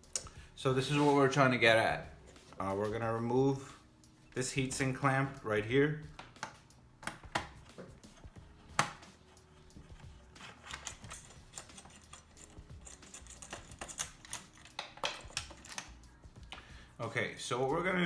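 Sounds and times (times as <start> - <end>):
screwdriver clicks and taps: 6.2 - 7.9, 12.8 - 16.6.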